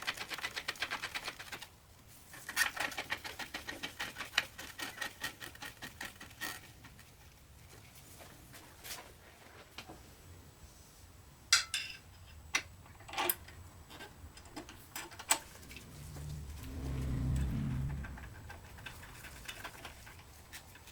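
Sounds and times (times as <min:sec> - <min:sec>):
low hum: 0:15.2 - 0:19.8.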